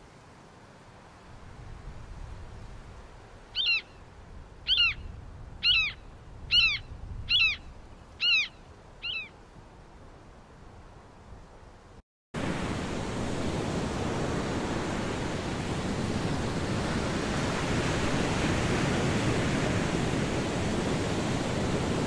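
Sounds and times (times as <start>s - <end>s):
bird calling: 3.6s - 4.0s, 4.7s - 9.4s.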